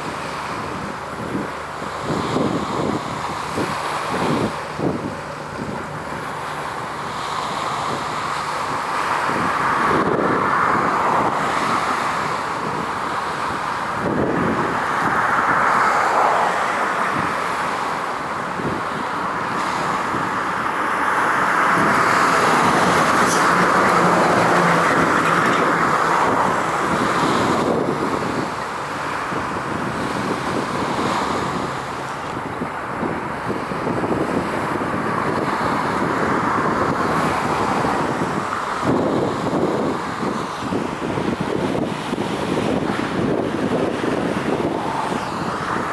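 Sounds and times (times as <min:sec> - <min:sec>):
vehicles passing: 0:00.0 - 0:45.9.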